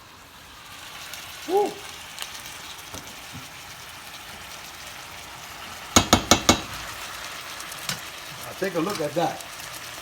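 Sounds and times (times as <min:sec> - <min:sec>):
meat and onions sizzling: 0:00.0 - 0:10.0
utensil knocking against pan: 0:06.0 - 0:06.9.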